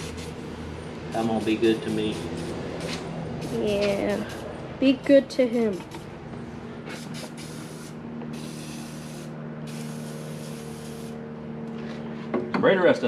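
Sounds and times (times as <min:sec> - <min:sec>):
aerosol spray hissing: 0:07.0 - 0:11.2.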